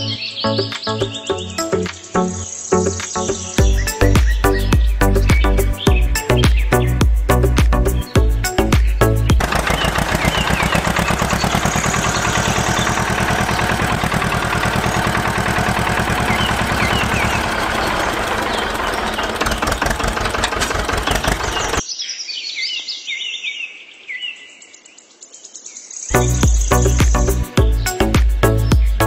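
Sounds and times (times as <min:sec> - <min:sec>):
birds chirping: 0:00.0 - 0:29.0
tractor engine chugging: 0:09.3 - 0:21.8.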